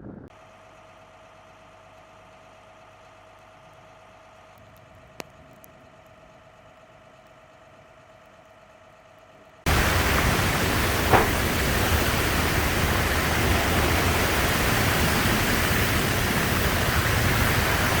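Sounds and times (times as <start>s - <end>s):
rushing water: 9.7s - 18.0s
short knock: 11.0s - 11.4s.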